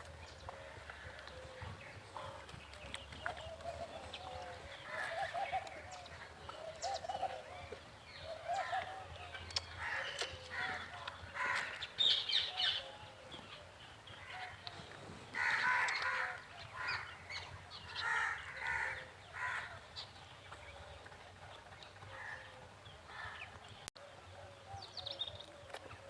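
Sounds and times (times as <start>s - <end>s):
birds harsh calls: 0.0s - 26.0s.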